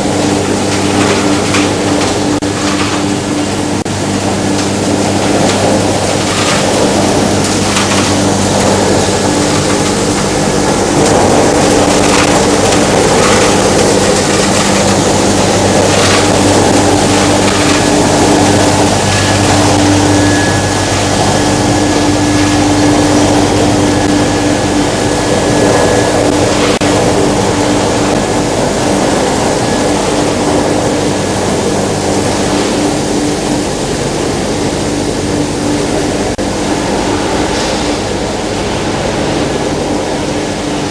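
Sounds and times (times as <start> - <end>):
churning water rushing: 0.0 - 40.9
motor hum: 0.0 - 40.9.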